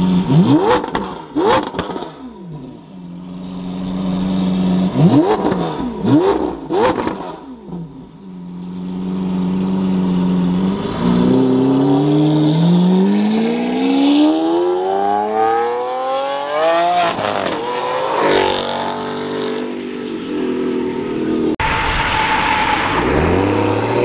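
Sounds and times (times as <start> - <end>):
car engine accelerating hard: 8.7 - 19.6.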